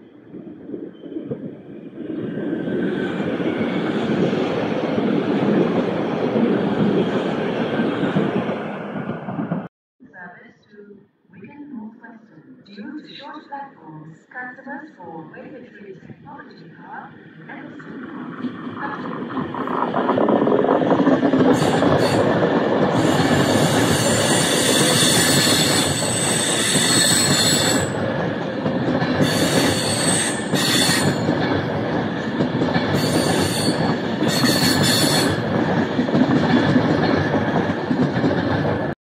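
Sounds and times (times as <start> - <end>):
train wheels rumbling on rail: 0.0 - 9.7, 17.1 - 39.0
high-pitched wheel squeal: 23.0 - 28.0, 29.2 - 31.2, 33.0 - 35.4.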